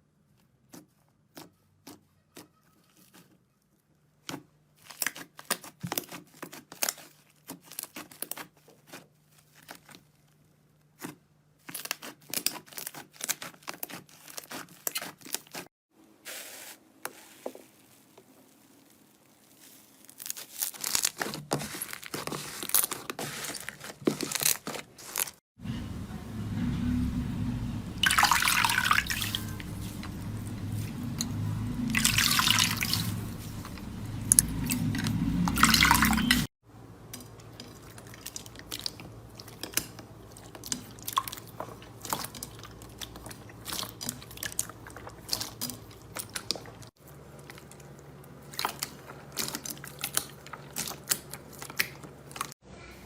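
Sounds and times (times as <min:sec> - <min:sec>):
slime crackling and popping: 0:17.2 - 0:23.0.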